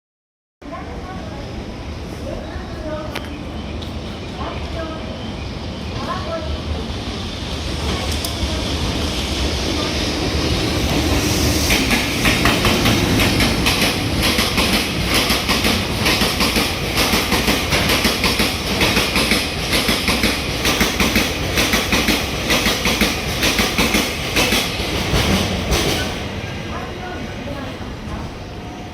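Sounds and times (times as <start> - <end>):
train rumble: 0.6 - 28.9
train wheels clattering over rail joints: 10.9 - 26.3.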